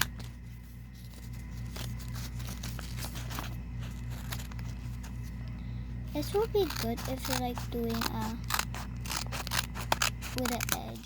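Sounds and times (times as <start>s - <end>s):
paper and tape rustling: 0.0s - 5.4s, 6.2s - 11.0s
pulsing electrical hum: 0.0s - 11.0s
scissors cutting: 6.2s - 11.0s.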